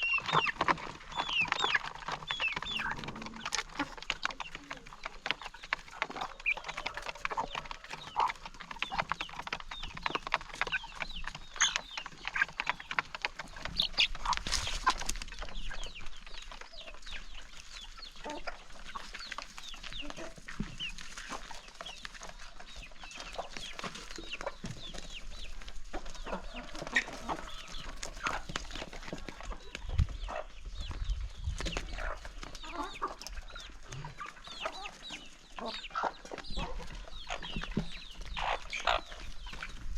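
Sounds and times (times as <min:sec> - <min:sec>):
pecking clicks on feed: 0:00.0 - 0:30.9
chickens clucking: 0:00.0 - 0:39.9.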